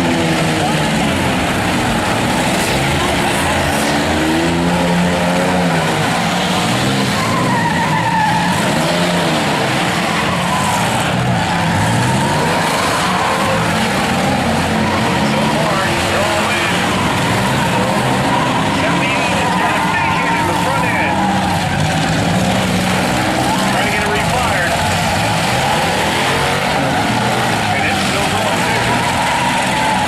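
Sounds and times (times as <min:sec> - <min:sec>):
car engines revving: 0:00.0 - 0:30.0
tyres skidding: 0:00.0 - 0:30.0.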